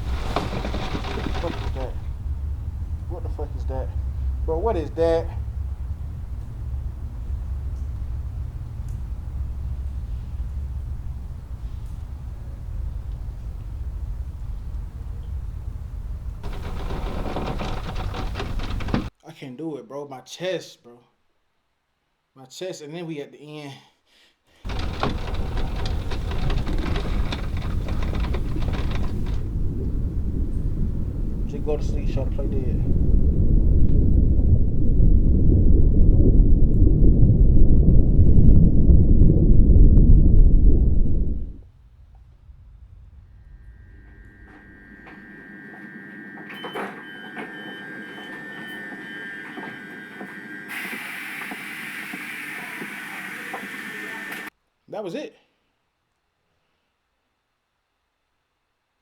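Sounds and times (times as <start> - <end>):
dense crackle of clicks: 0.0 - 19.1, 24.7 - 37.0
loud low rumble: 0.0 - 19.1, 24.7 - 50.7
steady high tone: 43.4 - 54.5
short beeps: 43.7 - 52.3
loud hiss: 48.3 - 54.5.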